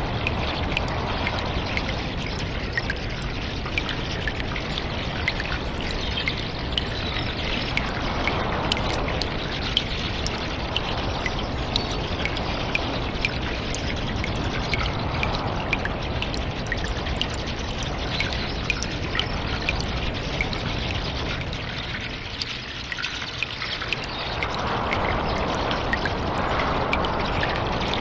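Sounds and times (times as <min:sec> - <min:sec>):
running water trickling: 0:00.0 - 0:28.0
water drips: 0:00.0 - 0:28.0.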